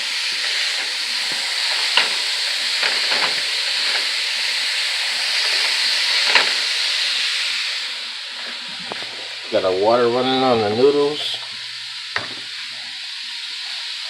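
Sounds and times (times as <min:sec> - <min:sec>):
meat sizzling in a pot: 0:00.0 - 0:14.0.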